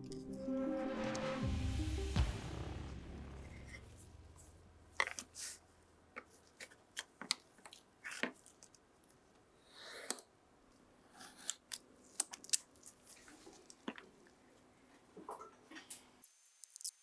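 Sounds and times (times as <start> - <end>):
low music note: 0.0 - 5.0
small tool clicks and snips: 11.2 - 13.0, 16.2 - 17.0.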